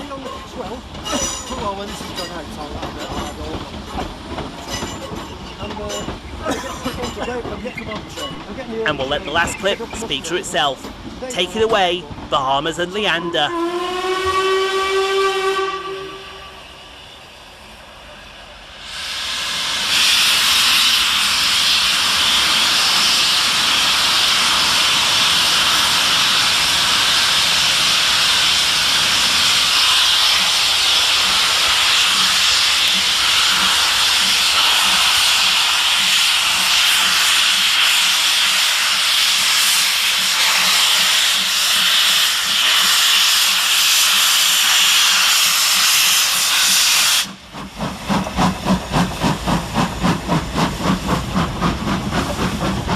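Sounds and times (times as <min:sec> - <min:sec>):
steam locomotive hissing steam: 0:12.5 - 0:52.9.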